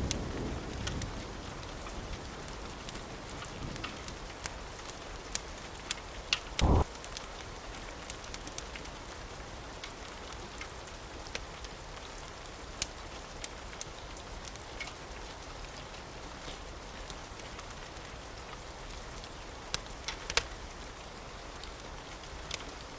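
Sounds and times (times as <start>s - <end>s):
steady rain hissing: 0.0s - 22.9s
wood fire crackling: 0.0s - 22.9s
loud low thump: 6.6s - 6.9s.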